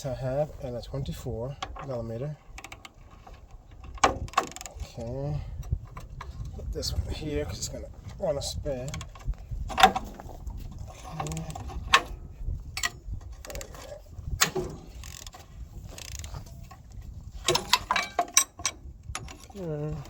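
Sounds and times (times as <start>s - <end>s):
wrenches clinking on metal: 8.7s - 20.0s
ratchet clicks: 14.4s - 15.3s.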